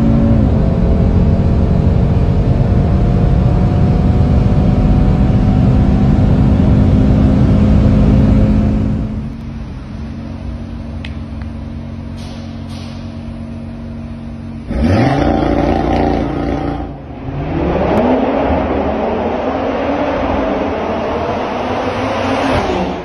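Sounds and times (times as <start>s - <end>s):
car engine accelerating hard: 0.0s - 9.4s, 14.5s - 23.0s.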